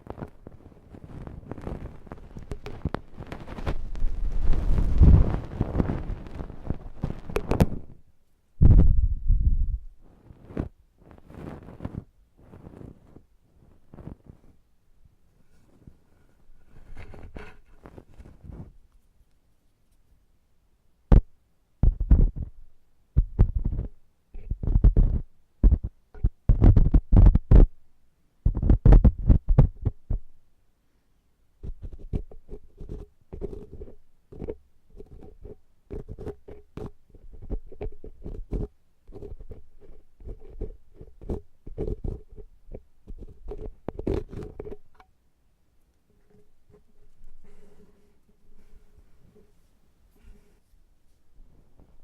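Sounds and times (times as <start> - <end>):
tools scraping inside ear model: 15.5 - 18.6, 31.6 - 45.1, 46.1 - 49.6.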